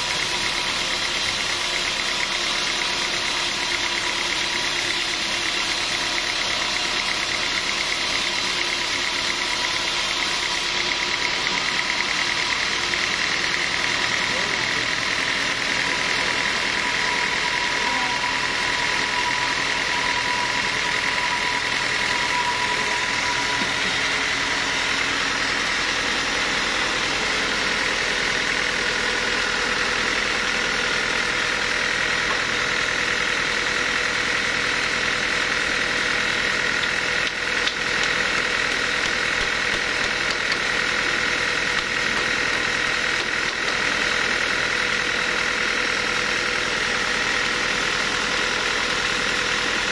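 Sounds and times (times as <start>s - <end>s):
sawmill machinery drone: 0.0s - 49.9s
high steady whine: 15.8s - 27.9s.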